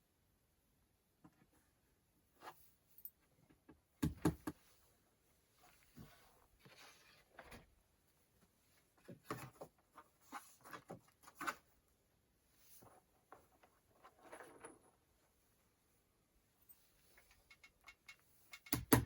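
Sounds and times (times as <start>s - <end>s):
knocks and taps on wood: 4.0s - 4.6s.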